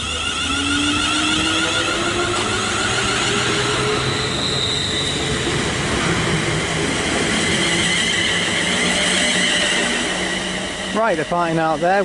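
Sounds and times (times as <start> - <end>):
electric motor whine rising: 0.0 - 4.5
train wheels rumbling: 0.0 - 12.0.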